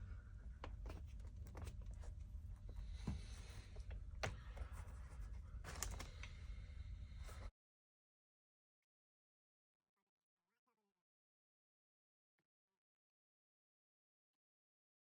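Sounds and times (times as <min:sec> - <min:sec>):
clicks and scratching of trim parts: 0:00.5 - 0:06.4.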